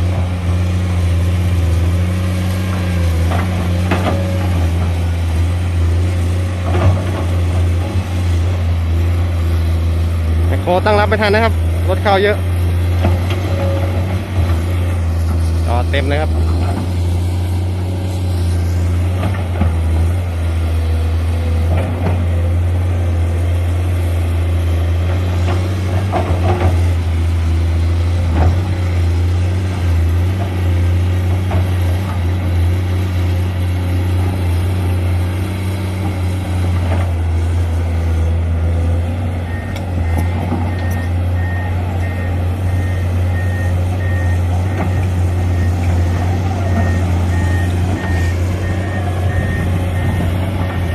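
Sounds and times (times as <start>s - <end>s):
diesel engine droning: 0.0s - 50.9s
reversing alarm beeping: 39.4s - 50.9s.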